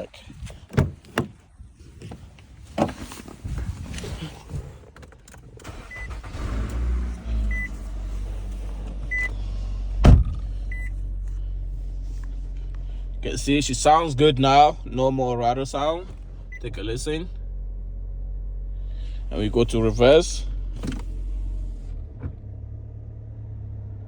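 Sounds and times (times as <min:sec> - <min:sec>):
car door shutting: 0:00.5 - 0:01.4, 0:04.9 - 0:10.9, 0:20.8 - 0:22.5
car engine idling: 0:04.0 - 0:24.0
dashboard warning chime beeping: 0:05.7 - 0:06.3, 0:07.4 - 0:07.8, 0:09.0 - 0:09.4, 0:10.7 - 0:11.0.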